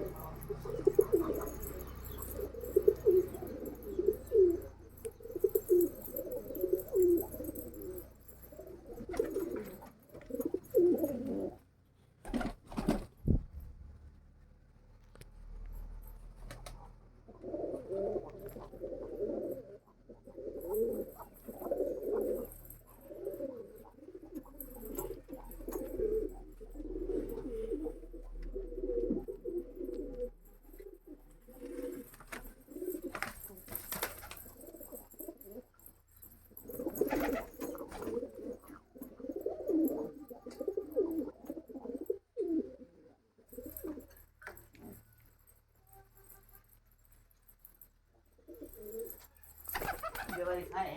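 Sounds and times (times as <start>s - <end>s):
pigeons cooing: 0.0s - 11.6s, 17.3s - 33.7s, 36.5s - 45.0s, 48.4s - 50.9s.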